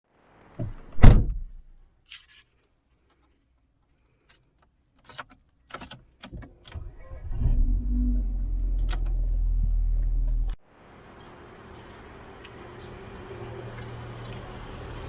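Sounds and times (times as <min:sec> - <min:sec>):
heavy thump: 0:00.6 - 0:01.6
light clicks and rattles: 0:04.1 - 0:07.0.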